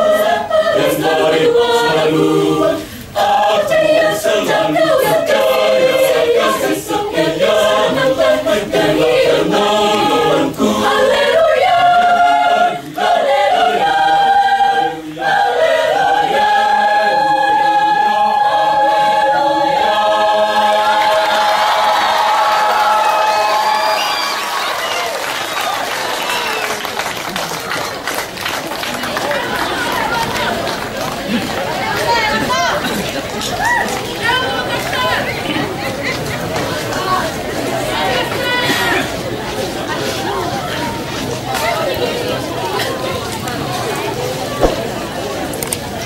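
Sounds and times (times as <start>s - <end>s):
choir singing: 0.0s - 24.1s.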